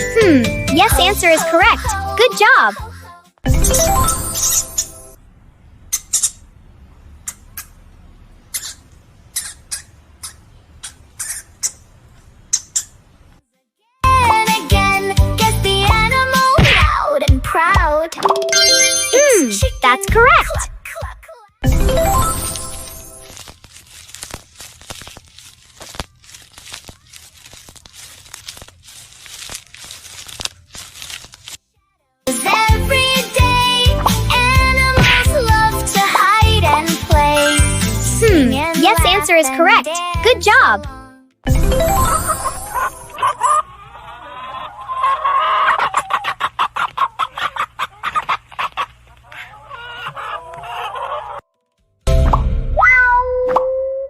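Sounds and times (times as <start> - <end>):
plastic bags crinkling and tearing: 22.2 - 31.7
chickens clucking and cackling: 42.4 - 51.5.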